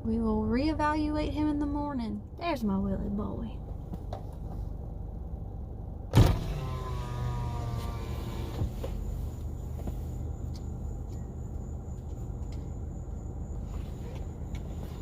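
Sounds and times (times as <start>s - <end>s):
steady low hum: 0.0s - 15.0s
window motor clunk: 6.1s - 9.2s
power window motor running: 6.1s - 9.9s.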